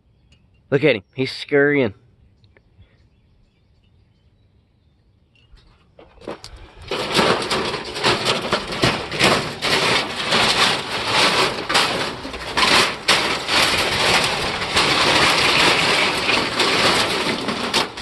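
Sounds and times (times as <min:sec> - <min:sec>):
metal crunching and tearing: 0:06.0 - 0:18.0.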